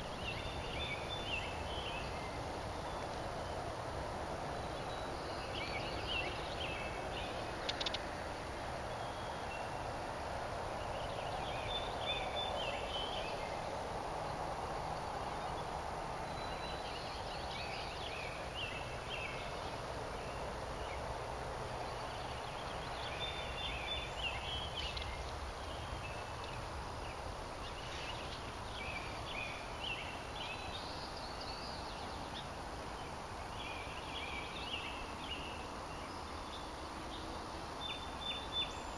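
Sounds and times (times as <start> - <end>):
songbird chirping: 0.0 - 38.9
steady background hiss: 0.0 - 38.9.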